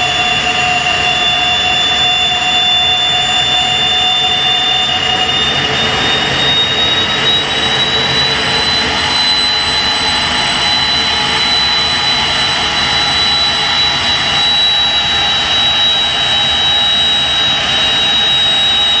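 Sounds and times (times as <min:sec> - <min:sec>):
gas turbine roaring and whining: 0:00.0 - 0:19.0.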